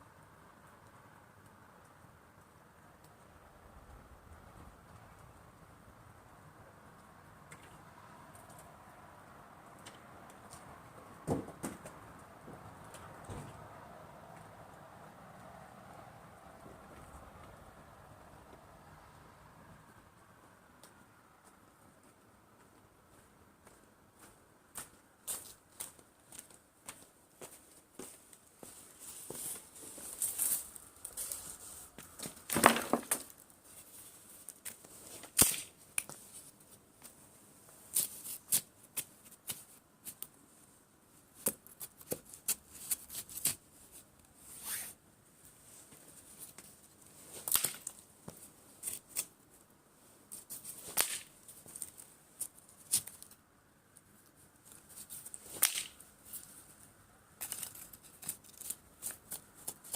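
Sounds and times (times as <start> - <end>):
dry kindling snapping and rustling: 29.5 - 37.2, 41.4 - 44.3, 45.9 - 49.4, 50.3 - 59.9.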